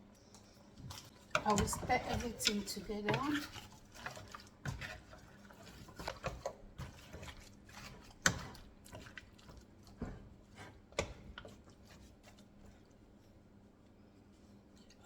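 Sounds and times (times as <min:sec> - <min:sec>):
spoon scraping and knocking in a pot: 0:00.8 - 0:12.6.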